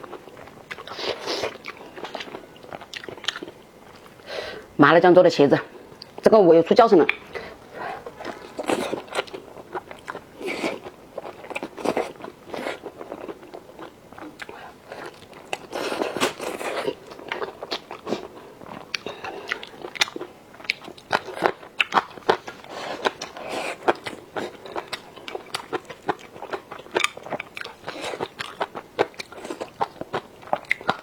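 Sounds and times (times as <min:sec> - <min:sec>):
person chewing crunchy food: 0:00.0 - 0:04.3, 0:07.1 - 0:31.0.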